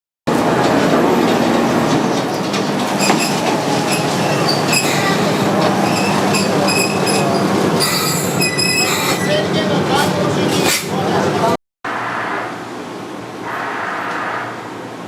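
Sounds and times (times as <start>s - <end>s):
train wheels rumbling: 0.3s - 11.5s
high-pitched wheel squeals: 3.0s - 9.5s.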